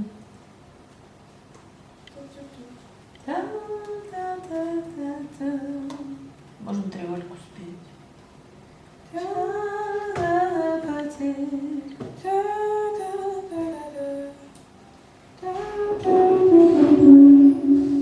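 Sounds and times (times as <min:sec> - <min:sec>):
woman humming a melody: 0:15.4 - 0:18.0.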